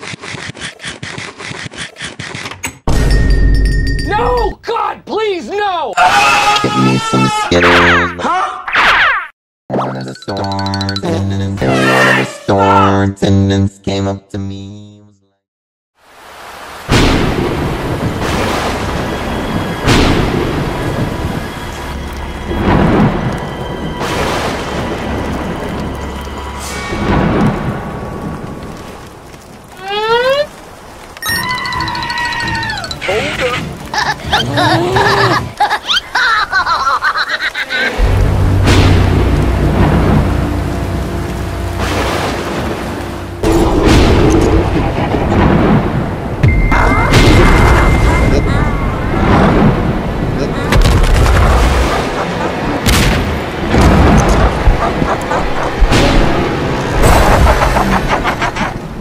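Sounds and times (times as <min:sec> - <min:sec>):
heavy rain: 0:16.0 - 0:37.3, 0:37.9 - 0:59.0
thunder: 0:16.9 - 0:25.8, 0:26.6 - 0:29.0, 0:38.0 - 0:40.9, 0:41.8 - 0:52.2, 0:52.8 - 0:55.1
loud thunder crack: 0:43.4 - 0:52.1.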